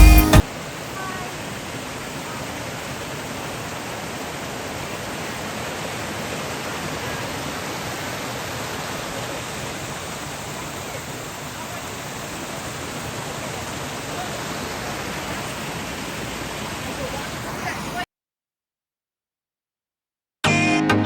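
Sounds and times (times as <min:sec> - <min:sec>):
background music: 0:00.0 - 0:00.4, 0:20.4 - 0:21.0
stream flowing: 0:00.0 - 0:18.0.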